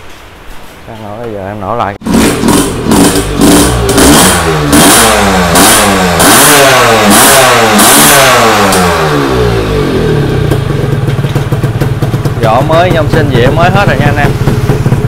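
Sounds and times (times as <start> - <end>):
motorcycle engine revving: 2.0 - 15.0.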